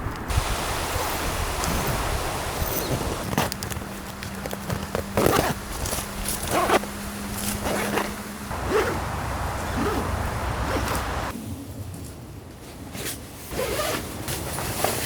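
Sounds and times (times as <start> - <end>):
wind rushing: 0.0 - 4.0, 5.5 - 11.3
tent zipper rasping: 0.3 - 11.3, 13.5 - 15.0.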